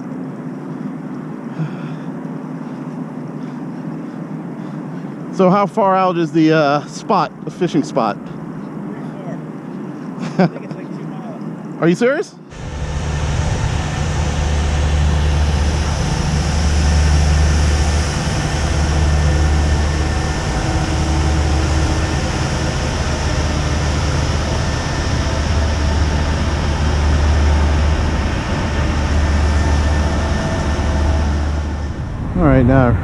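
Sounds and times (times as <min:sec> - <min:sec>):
low engine drone: 0:00.0 - 0:11.7, 0:12.4 - 0:33.0
hiss of noise: 0:12.5 - 0:32.6.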